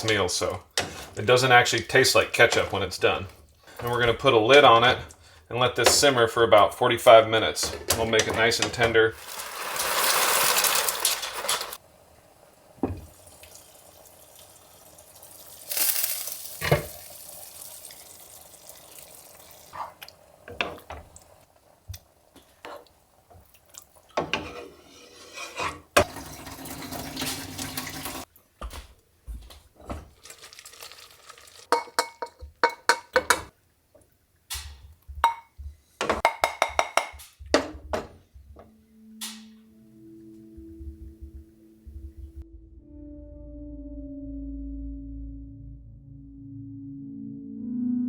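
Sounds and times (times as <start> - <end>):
water splashing in a sink: 12.7 - 24.2, 26.0 - 28.3, 30.1 - 32.2
dishes and cutlery clinking: 31.7 - 33.5
soft music: 37.9 - 48.0.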